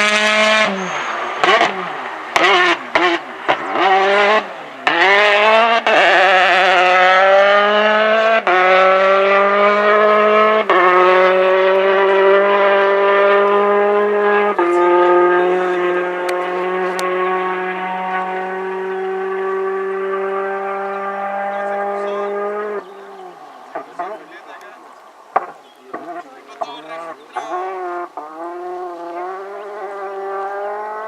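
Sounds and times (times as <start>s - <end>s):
rally car engine at full throttle: 0.0s - 31.0s.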